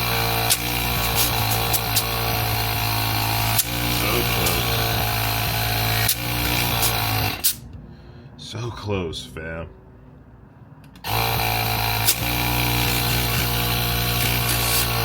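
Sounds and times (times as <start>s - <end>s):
air compressor humming and hissing: 0.0s - 7.6s, 11.0s - 15.0s.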